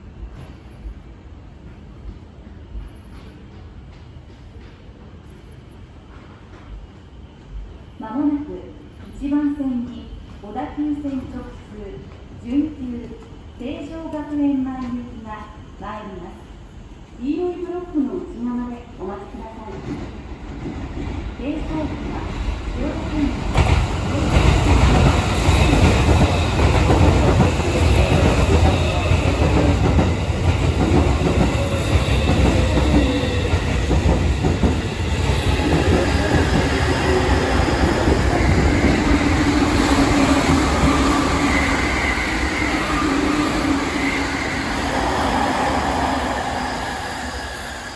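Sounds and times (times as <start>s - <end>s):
train brakes squealing: 34.8s - 47.9s.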